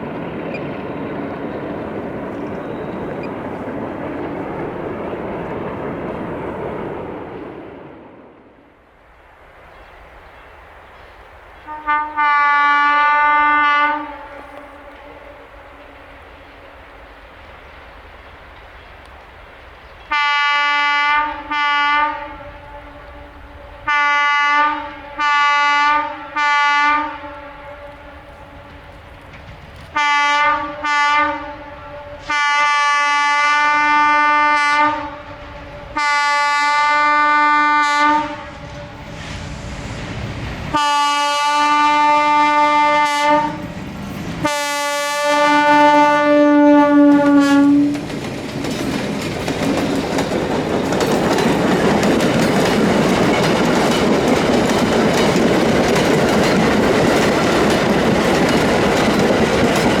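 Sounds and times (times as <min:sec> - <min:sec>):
wheels clicking over rail joints: 0:00.0 - 0:06.4, 0:28.2 - 0:30.0, 0:47.1 - 1:00.0
train rumbling past: 0:00.0 - 1:00.0
train horn blasts: 0:11.6 - 0:16.0, 0:20.1 - 0:29.0, 0:29.9 - 0:39.1, 0:40.7 - 0:43.7, 0:44.4 - 0:48.0.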